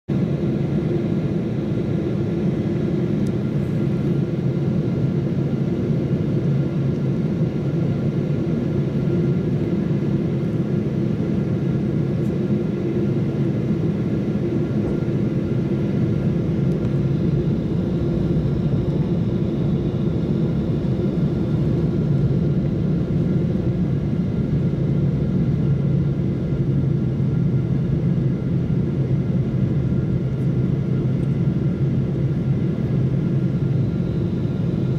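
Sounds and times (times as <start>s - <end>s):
jet cabin engine drone: 0.1s - 34.9s.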